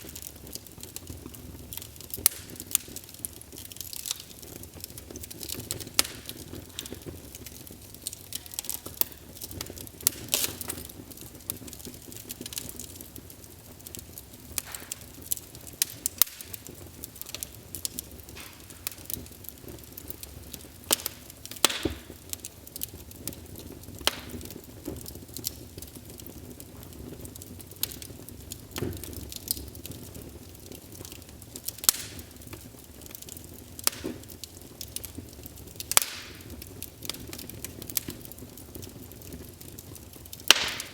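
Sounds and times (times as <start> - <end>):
low rush of flame: 0.0 - 40.9
wood fire crackling and popping: 0.0 - 40.9.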